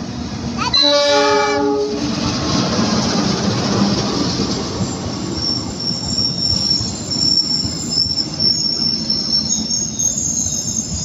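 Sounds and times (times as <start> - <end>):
train wheels rumbling on rails: 0.0 - 11.0
diesel locomotive horn: 0.7 - 2.1
high wheel squeal: 4.7 - 11.0.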